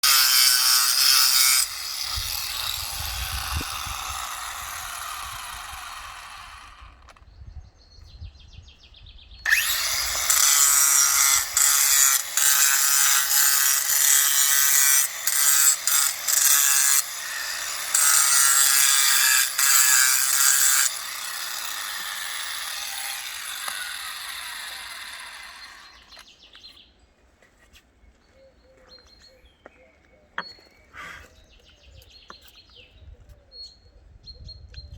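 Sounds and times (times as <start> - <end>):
power tool cutting stone: 0.0 - 7.2, 9.5 - 26.2.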